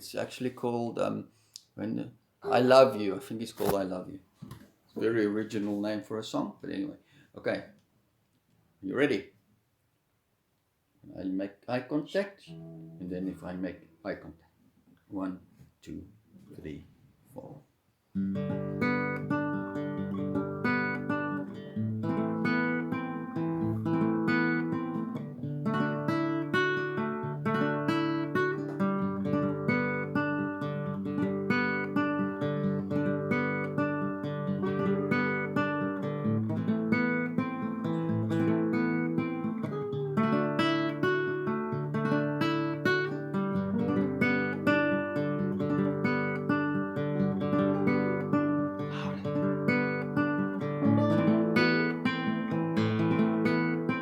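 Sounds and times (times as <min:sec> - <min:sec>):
acoustic guitar strumming: 0:12.5 - 0:13.9, 0:18.2 - 0:54.0.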